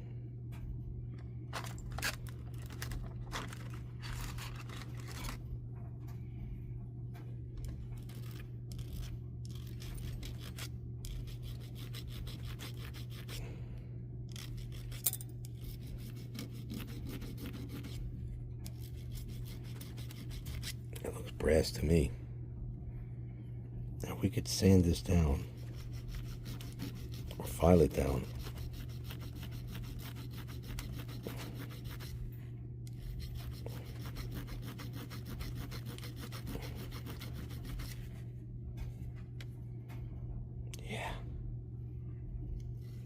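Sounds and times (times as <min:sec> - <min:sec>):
hand file scraping on metal: 0:08.2 - 0:13.4, 0:15.6 - 0:18.0, 0:18.7 - 0:20.8, 0:25.1 - 0:32.2, 0:33.0 - 0:38.0.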